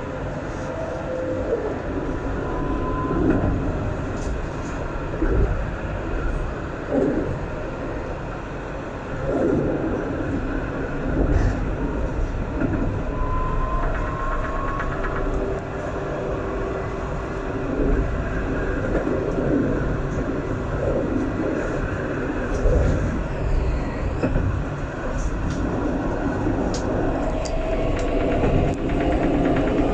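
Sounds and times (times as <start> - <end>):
tram rolling rumble: 0.0 - 29.9
faint whine: 9.2 - 28.0.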